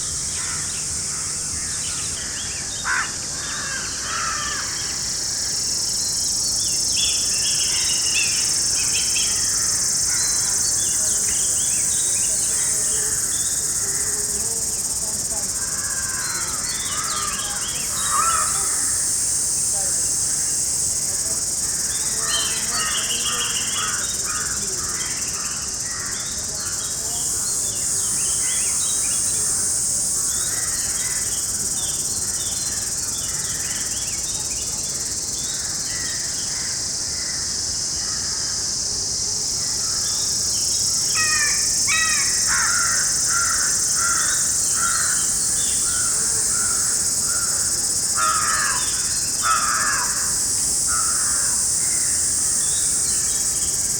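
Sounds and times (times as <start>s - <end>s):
high-pitched insect chorus: 0.0s - 53.9s
wild birds calling: 9.3s - 34.2s, 41.2s - 53.9s.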